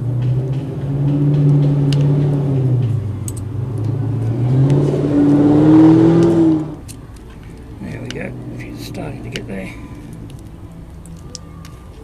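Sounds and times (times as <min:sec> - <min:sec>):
vehicle engine revving: 0:00.0 - 0:06.9.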